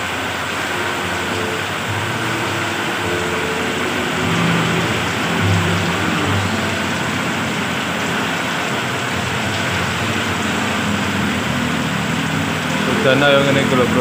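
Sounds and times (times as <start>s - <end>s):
heavy rain pouring: 0.0s - 14.0s
tyres splashing through water: 0.0s - 14.0s
vehicle engines humming: 0.0s - 14.0s.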